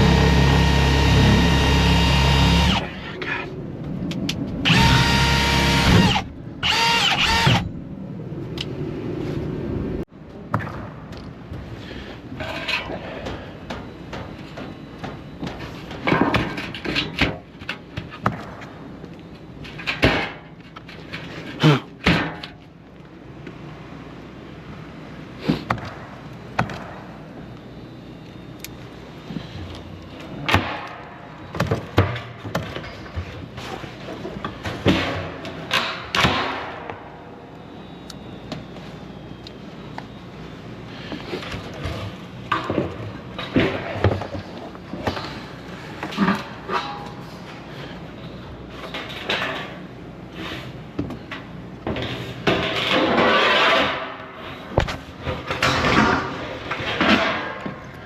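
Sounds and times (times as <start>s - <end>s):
power drill whining: 0.0s - 2.8s, 4.7s - 7.6s.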